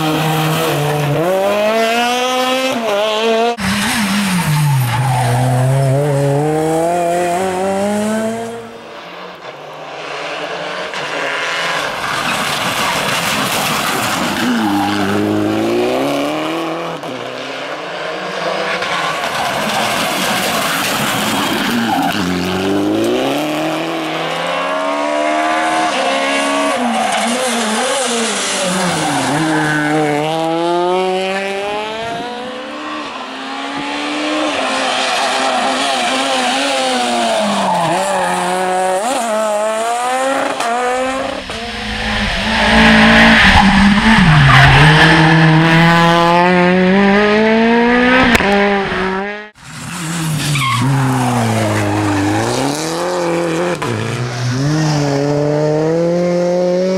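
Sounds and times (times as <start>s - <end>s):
rally car engines revving: 0.0s - 56.9s
tyre squeal: 50.0s - 52.8s.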